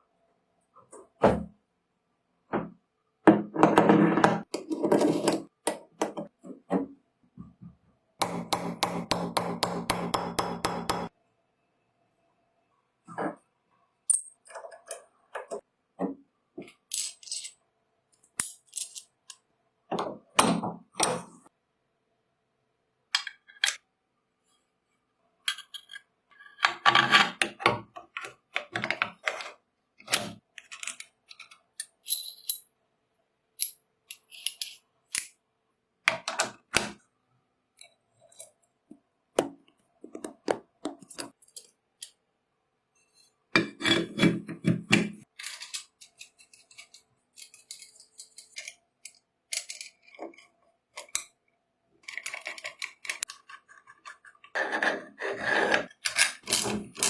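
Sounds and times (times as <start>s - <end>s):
small metal parts clinking: 16.9s - 17.6s, 18.2s - 19.4s, 33.6s - 35.3s, 41.0s - 41.8s, 45.3s - 50.4s.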